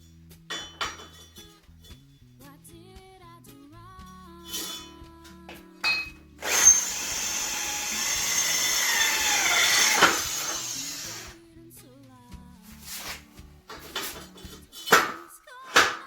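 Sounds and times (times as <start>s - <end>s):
faint background music: 0.0s - 16.0s
power drill boring: 4.5s - 4.9s, 6.4s - 11.4s.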